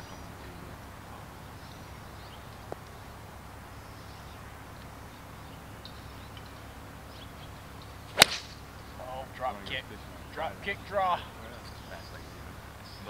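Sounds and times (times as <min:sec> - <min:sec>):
faint bird chirps: 0:11.2 - 0:13.0.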